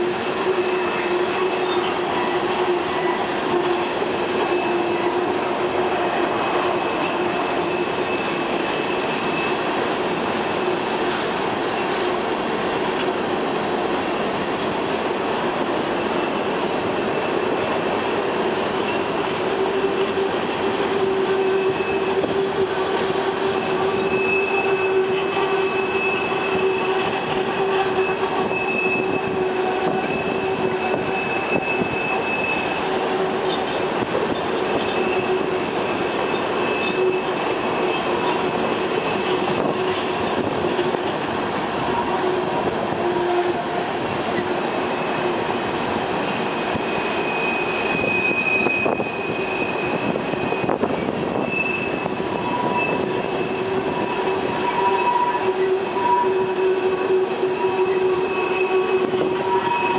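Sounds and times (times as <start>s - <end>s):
train wheels rumbling on rails: 0.0s - 59.9s
high thin wheel squeal: 0.1s - 9.8s, 18.8s - 40.9s, 46.2s - 59.9s.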